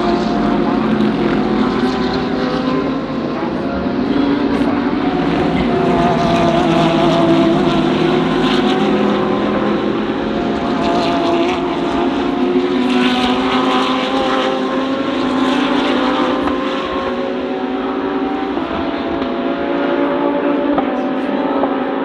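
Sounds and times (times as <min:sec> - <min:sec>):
race car engines at speed: 0:00.0 - 0:22.0.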